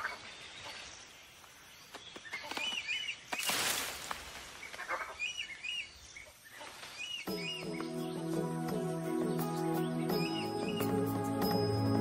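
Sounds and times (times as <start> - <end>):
bird high call notes: 7.3 - 12.0.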